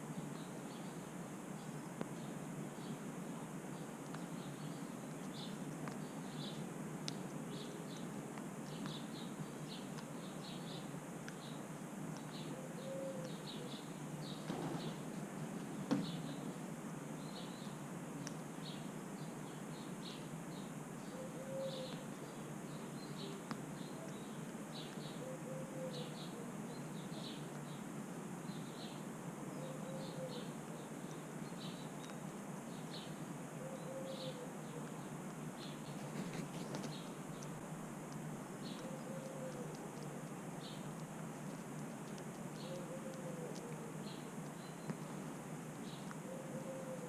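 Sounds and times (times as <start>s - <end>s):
steady outdoor hiss: 0.0s - 47.0s
small birds chirping: 0.1s - 47.0s
soft low bird call: 21.1s - 22.0s, 42.6s - 45.1s.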